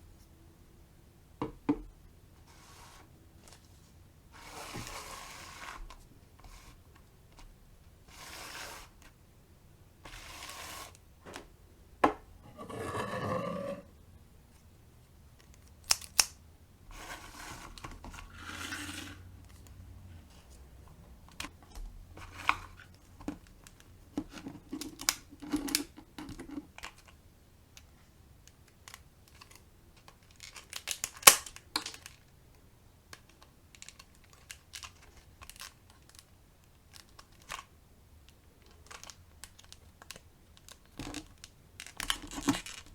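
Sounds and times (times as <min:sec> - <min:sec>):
packaging rustling and tearing: 0:33.7 - 0:37.6, 0:38.6 - 0:42.9.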